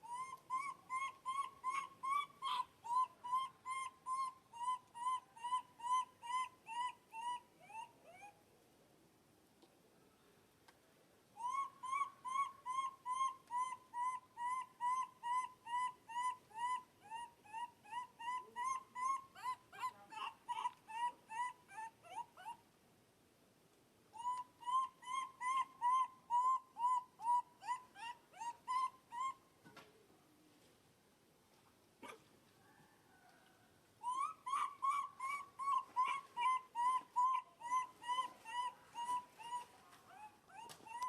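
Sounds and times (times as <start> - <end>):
baby monkey crying: 0.0 - 8.3, 11.4 - 22.6, 24.2 - 29.4, 34.0 - 41.0.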